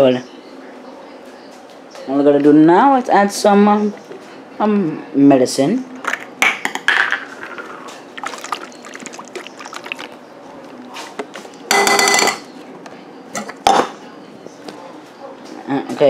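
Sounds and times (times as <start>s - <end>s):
liquid pouring into a bowl: 7.4s - 10.3s.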